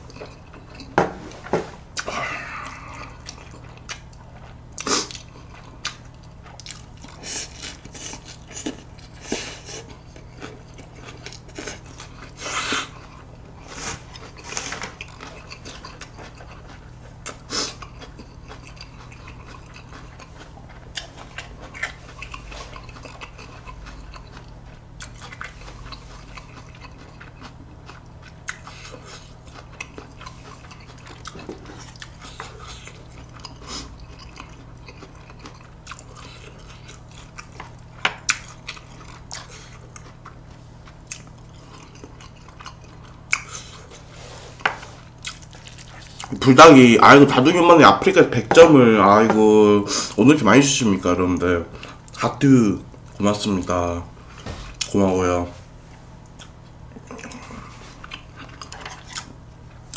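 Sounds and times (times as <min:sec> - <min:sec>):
man chewing noodles: 0:00.0 - 0:01.0, 0:01.8 - 0:46.5, 0:55.9 - 0:59.9
steady low hum: 0:00.0 - 0:59.9.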